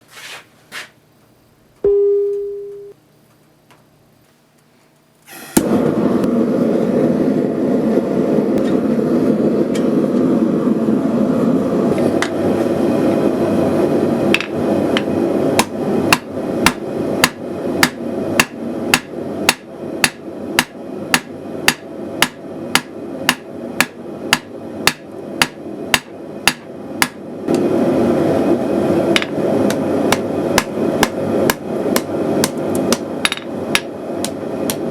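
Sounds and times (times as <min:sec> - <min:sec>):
gas forge burner roar: 0:05.3 - 0:34.9
hammer striking steel on anvil: 0:14.4 - 0:27.2, 0:29.2 - 0:34.9.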